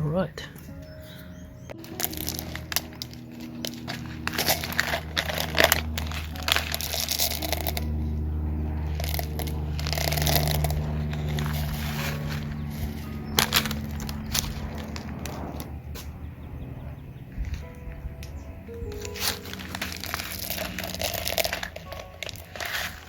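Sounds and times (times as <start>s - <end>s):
steady low hum: 0.0s - 23.0s
soil being scooped: 1.8s - 8.0s, 8.8s - 15.0s, 18.9s - 23.0s.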